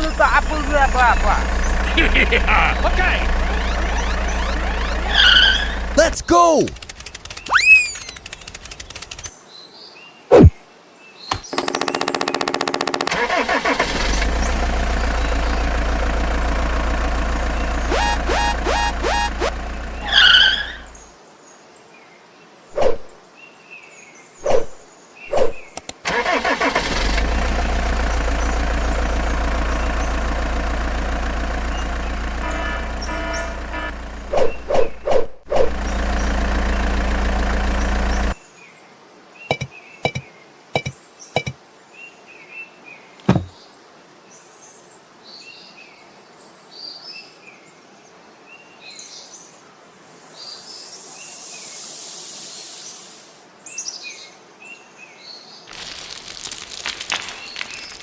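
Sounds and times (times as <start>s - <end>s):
small truck motor running: 0.0s - 9.3s, 11.3s - 21.0s, 26.1s - 38.4s
birds chirping faintly: 0.0s - 12.1s, 52.8s - 58.0s
sharp knocks and clacks: 40.8s - 41.6s.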